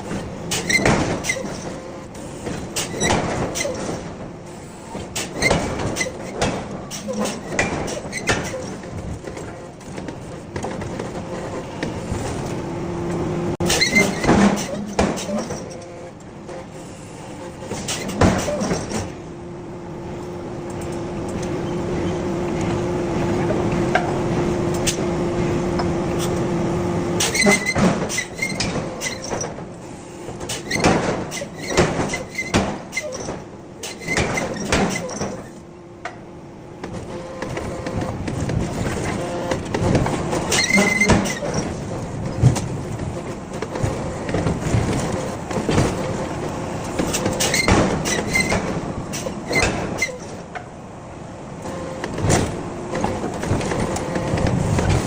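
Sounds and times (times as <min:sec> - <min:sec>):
short squeaks: 0:00.5 - 0:04.0, 0:13.6 - 0:19.1, 0:27.2 - 0:29.6, 0:30.5 - 0:35.6, 0:40.4 - 0:42.4, 0:47.0 - 0:50.4
metal clanks and knocks: 0:05.0 - 0:12.5, 0:13.6 - 0:16.0, 0:17.7 - 0:19.2, 0:36.9 - 0:50.7.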